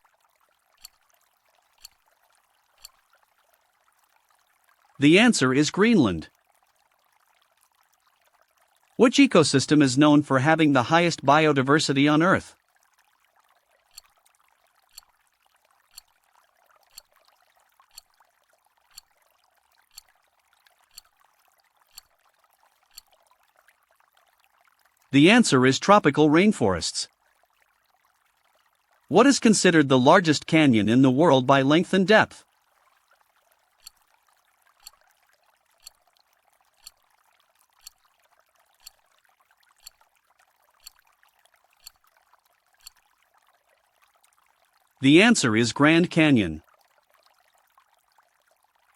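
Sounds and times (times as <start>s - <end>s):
clock ticking: 20.9s - 21.1s, 37.8s - 38.0s, 38.8s - 39.0s, 40.8s - 41.0s
countdown timer ticking: 45.0s - 46.5s.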